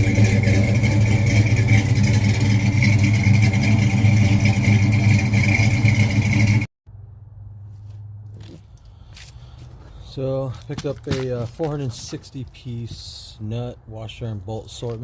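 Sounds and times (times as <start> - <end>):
engine running steadily: 0.0 - 6.7.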